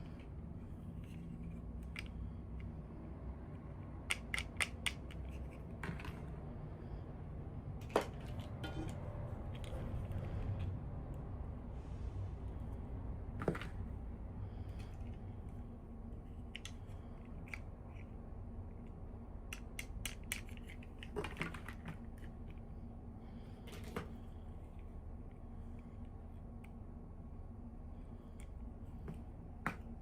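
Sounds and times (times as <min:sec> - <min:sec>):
toy pieces clicking: 0:04.0 - 0:05.6, 0:19.5 - 0:21.8.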